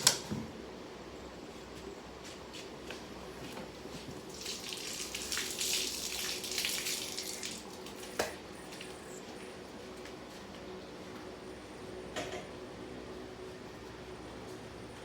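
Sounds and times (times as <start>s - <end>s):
water running from a tap: 4.2s - 8.0s.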